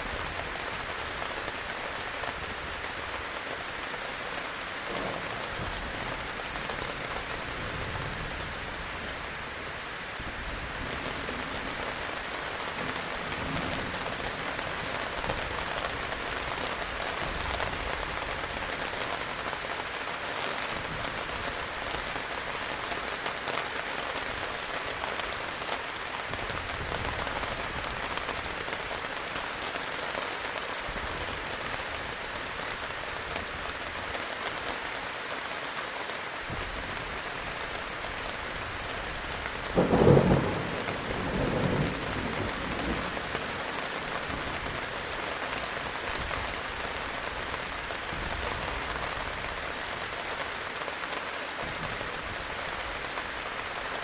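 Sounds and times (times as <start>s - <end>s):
heavy rain falling: 0.0s - 54.0s
thunderclap: 39.8s - 43.2s.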